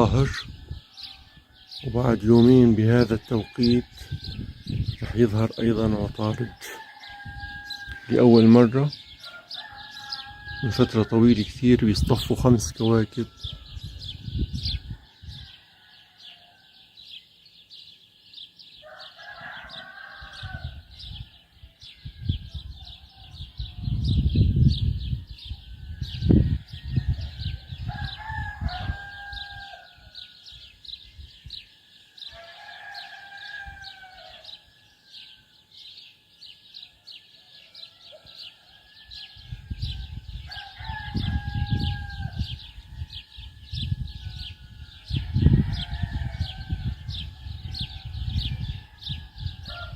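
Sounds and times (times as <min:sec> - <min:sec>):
low rumbling on microphone: 0:03.8 - 0:06.2, 0:13.4 - 0:15.5, 0:23.5 - 0:29.2, 0:39.4 - 0:49.9
rooster crowing: 0:06.3 - 0:11.4, 0:18.8 - 0:20.8, 0:26.0 - 0:30.4, 0:32.2 - 0:35.4, 0:37.4 - 0:49.9.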